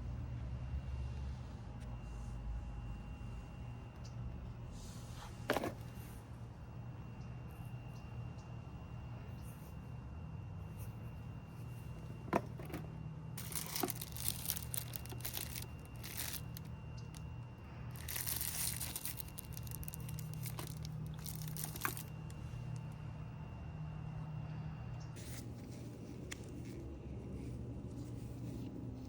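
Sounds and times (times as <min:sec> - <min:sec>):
low steady hum: 0:00.0 - 0:29.0
rustling and crinkling: 0:04.8 - 0:06.2, 0:10.7 - 0:23.0, 0:25.2 - 0:29.0.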